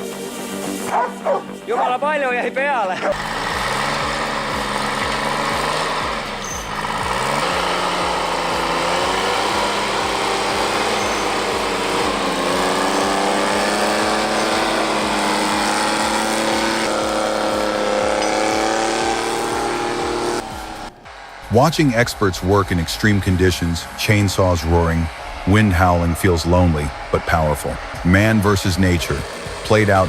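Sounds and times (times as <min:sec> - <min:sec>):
engine running steadily: 0:03.0 - 0:30.0
regular low pulse: 0:18.9 - 0:30.0.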